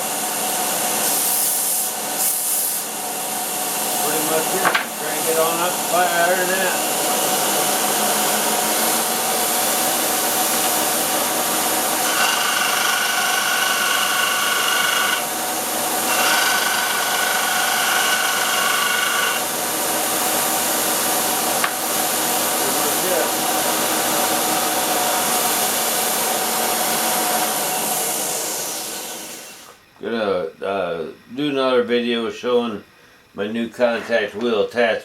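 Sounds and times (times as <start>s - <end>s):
belt grinder running: 3.8s - 26.3s.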